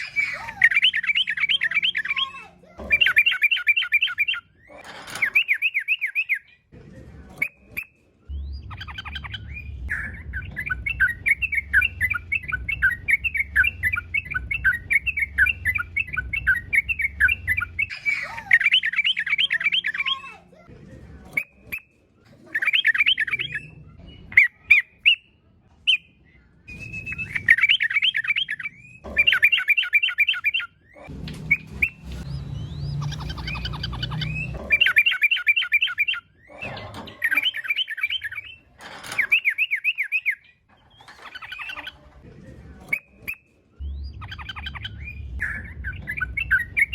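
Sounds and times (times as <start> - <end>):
bulbul singing: 0.0 - 6.6, 7.4 - 20.2, 25.9 - 42.0, 42.9 - 46.9
low rumble: 8.3 - 17.9, 31.1 - 34.8, 43.8 - 46.9.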